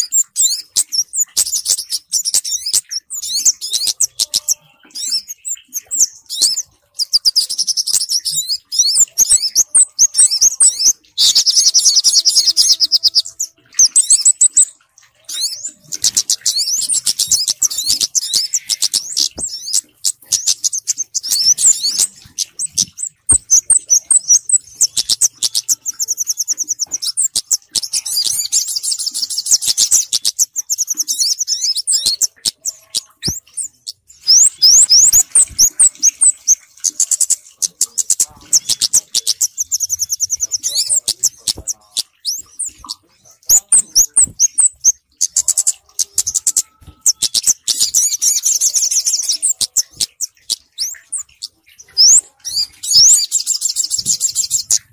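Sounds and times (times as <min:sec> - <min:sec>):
bird chirps and trills: 0:00.0 - 0:54.9.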